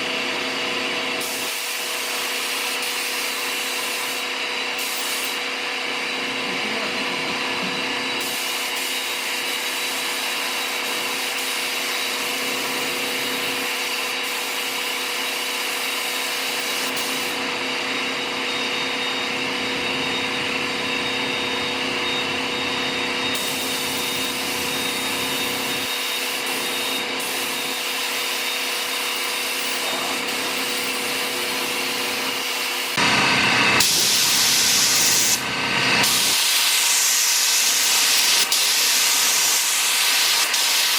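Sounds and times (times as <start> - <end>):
shop machine whirring hum: 0.0 - 40.9
compressed air hissing: 33.8 - 35.4.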